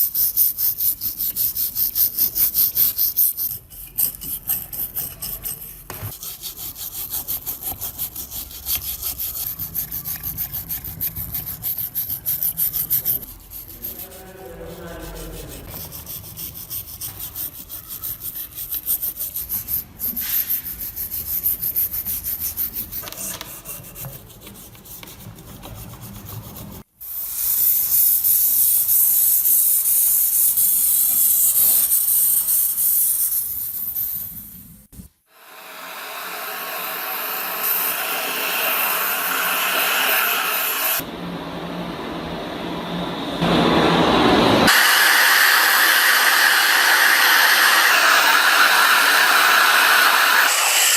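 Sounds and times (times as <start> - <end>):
loud steady hiss: 43.4 - 50.9.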